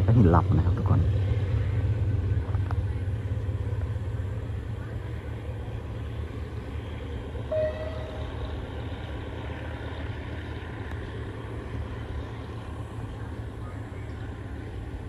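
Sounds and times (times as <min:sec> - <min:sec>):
train rumbling: 0:00.0 - 0:15.0
brief high tone: 0:07.5 - 0:08.6.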